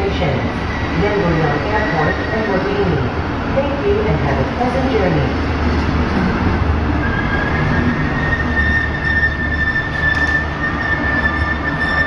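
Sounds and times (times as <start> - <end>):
train rumbling: 0.0 - 12.0
high squeal of wheels or brakes: 7.0 - 12.0.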